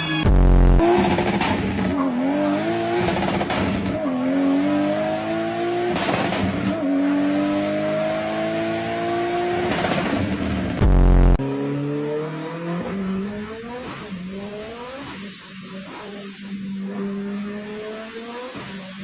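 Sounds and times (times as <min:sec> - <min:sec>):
car engine accelerating through gears: 0:00.4 - 0:15.2.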